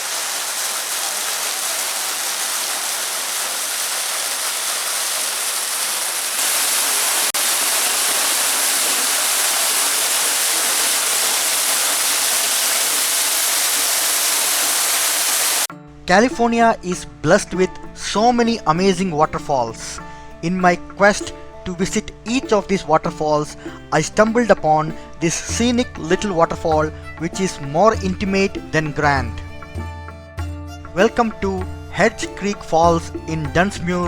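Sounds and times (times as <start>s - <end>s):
waterfall rushing: 0.0s - 15.7s.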